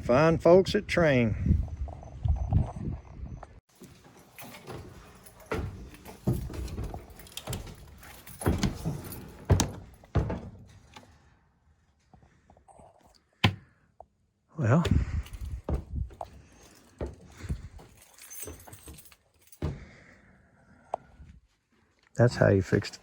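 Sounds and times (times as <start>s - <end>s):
knocks and rattles of handling: 3.6s - 11.3s, 14.8s - 20.1s.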